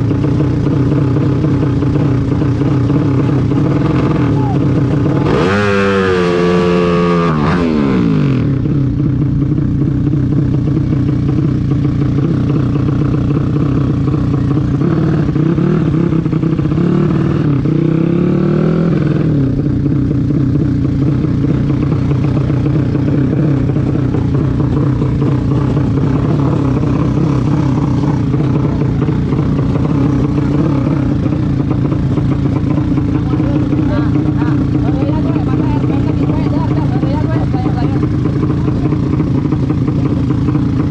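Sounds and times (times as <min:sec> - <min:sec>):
vehicle engine running under load: 0:00.0 - 0:40.9.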